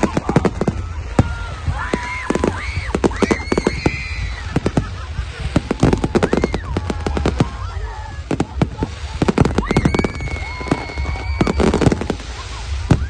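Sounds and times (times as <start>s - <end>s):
fireworks cracking and banging: 0.0s - 13.0s
high firework whistle: 0.0s - 13.0s.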